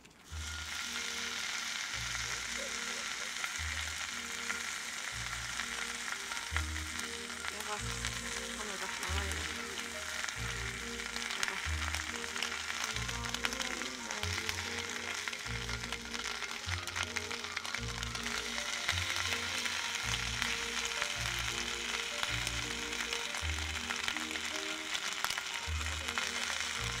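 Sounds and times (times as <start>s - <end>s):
egg sizzling in a pan: 0.0s - 27.0s
music with bass beat: 5.2s - 24.9s.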